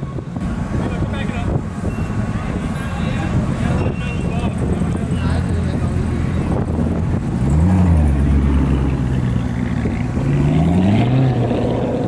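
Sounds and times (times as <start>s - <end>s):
car engine accelerating: 4.8s - 12.0s.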